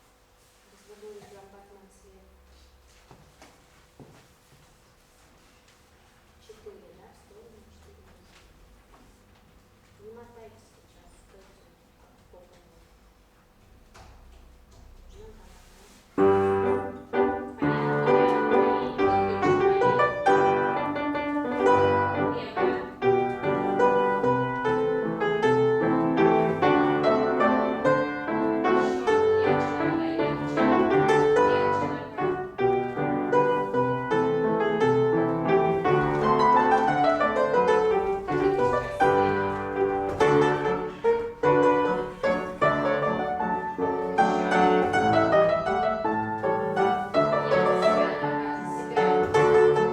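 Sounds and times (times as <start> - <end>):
classical piano accompaniment: 14.0 - 49.9.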